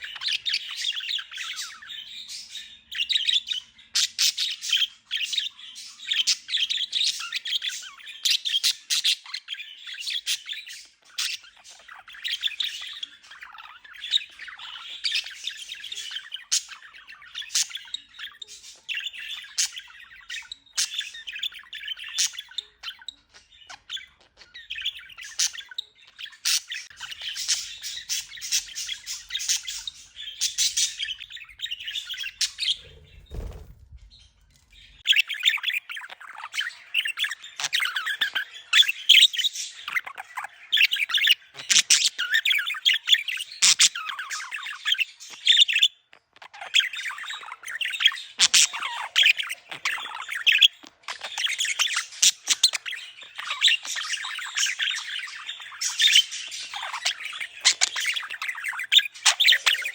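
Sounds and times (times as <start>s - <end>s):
budgerigars chattering and warbling: 0.0s - 59.9s
low rumble: 32.7s - 34.7s.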